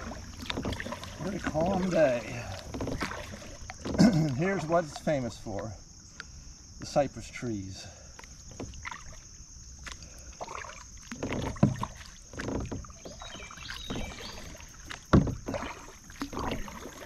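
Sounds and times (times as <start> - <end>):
paddle splashing in water: 0.0 - 17.0
sharp knocks: 15.1 - 15.5.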